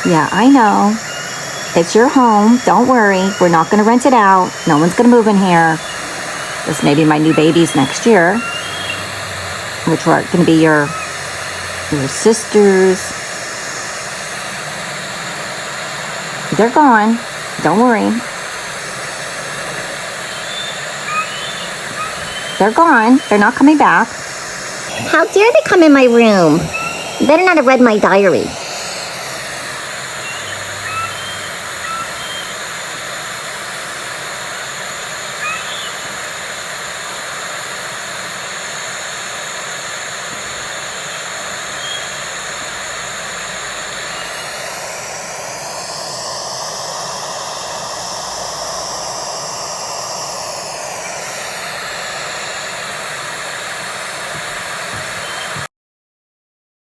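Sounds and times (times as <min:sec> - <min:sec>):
faint bird chirps: 0:00.0 - 0:09.2, 0:10.8 - 0:11.8, 0:20.2 - 0:24.0, 0:24.9 - 0:28.6, 0:30.2 - 0:32.6, 0:35.3 - 0:36.1, 0:41.1 - 0:42.2, 0:44.0 - 0:44.6, 0:55.2 - 0:55.6
microphone hiss: 0:00.0 - 0:55.7
aircraft passing overhead: 0:04.5 - 0:32.5.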